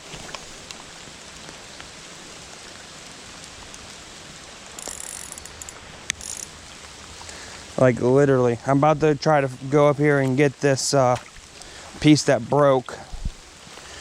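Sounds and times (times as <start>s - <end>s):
creek water flowing: 0.0s - 14.0s
rain pattering: 0.0s - 14.0s
high-pitched mechanical clicking: 4.8s - 6.5s.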